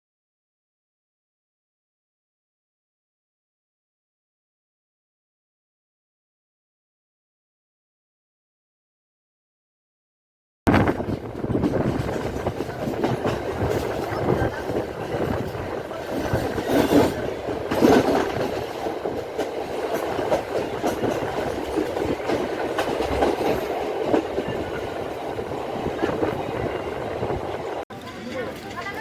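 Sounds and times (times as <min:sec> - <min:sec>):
train wheel and carriage noise: 0:10.7 - 0:29.0.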